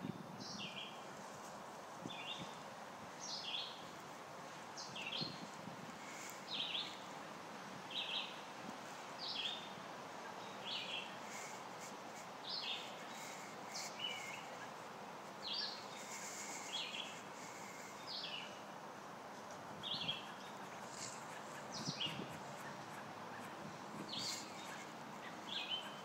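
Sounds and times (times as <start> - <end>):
outdoor background hiss: 0.0 - 26.0
bird chirping: 15.4 - 18.6, 19.8 - 26.0.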